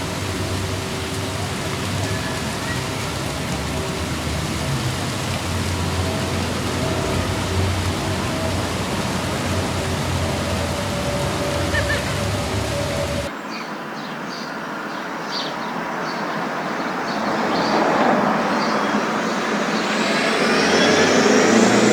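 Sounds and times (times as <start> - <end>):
moving car hum: 0.0 - 13.3.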